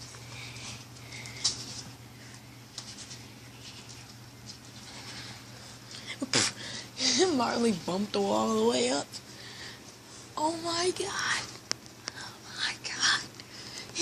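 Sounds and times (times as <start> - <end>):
pet paws pattering on floor: 0.0 - 5.9
low steady hum: 0.0 - 14.0.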